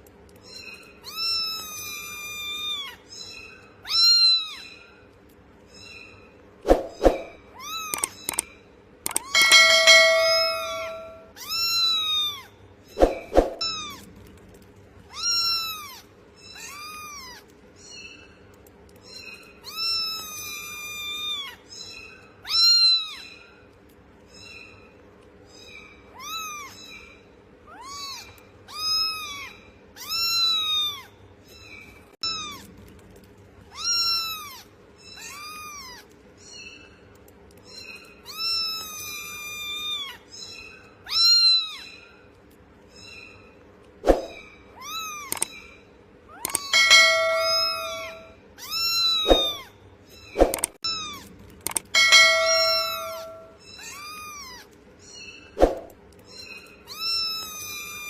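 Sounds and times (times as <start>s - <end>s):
cat meowing: 27.7s - 31.1s.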